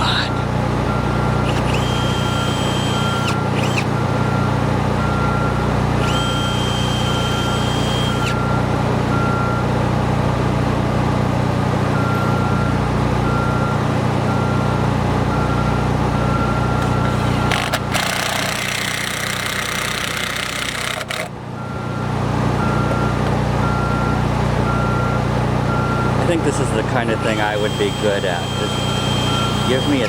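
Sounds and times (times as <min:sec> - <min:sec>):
backup alarm beeping: 0:00.0 - 0:09.7, 0:12.0 - 0:17.2, 0:21.6 - 0:30.0
diesel engine running: 0:00.0 - 0:30.0.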